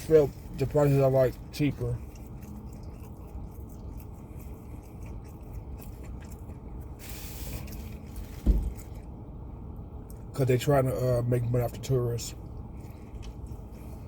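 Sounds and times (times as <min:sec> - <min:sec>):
steady low rumble: 0:00.0 - 0:14.0
thump: 0:08.4 - 0:08.8.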